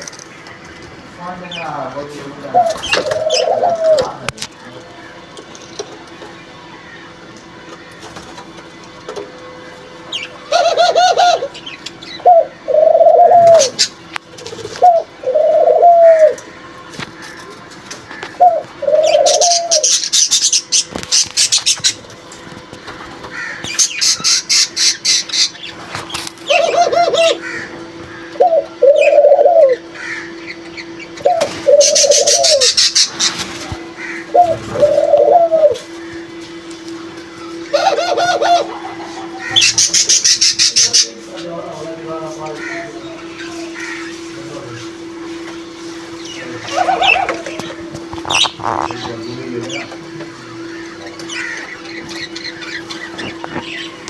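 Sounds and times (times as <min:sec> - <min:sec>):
steady low hum: 0:00.0 - 0:54.0
low cooing notes: 0:02.2 - 0:04.4, 0:08.4 - 0:20.1, 0:26.4 - 0:54.0
francolins high-pitched calling: 0:02.5 - 0:04.1, 0:09.4 - 0:22.2, 0:22.9 - 0:41.2, 0:42.5 - 0:44.4, 0:46.1 - 0:54.0.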